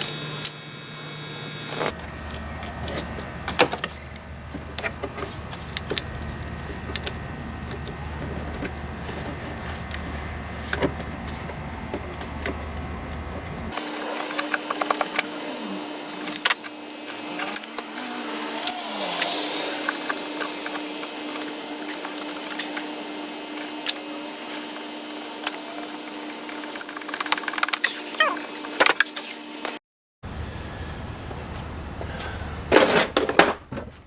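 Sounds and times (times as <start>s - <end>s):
steady hum: 0.0s - 27.7s.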